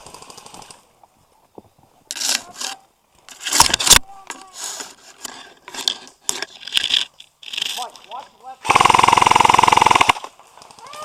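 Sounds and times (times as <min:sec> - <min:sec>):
rustling and scraping: 0:00.2 - 0:08.4
sharp clicks: 0:08.7 - 0:10.8.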